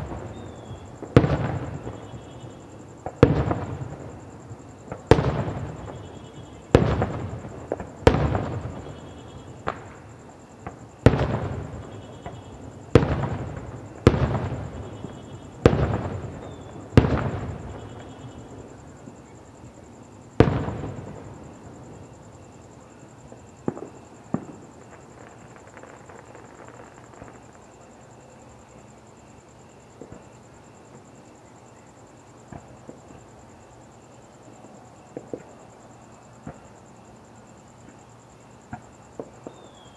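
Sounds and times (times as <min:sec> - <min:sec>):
faint fireworks pops: 0:00.0 - 0:19.5, 0:20.3 - 0:28.0, 0:29.8 - 0:31.1, 0:32.4 - 0:33.4, 0:35.0 - 0:37.0, 0:37.8 - 0:39.9
fireworks booming: 0:00.0 - 0:27.8, 0:29.9 - 0:31.1, 0:32.4 - 0:33.3, 0:35.1 - 0:35.7, 0:36.3 - 0:36.8, 0:37.8 - 0:39.9.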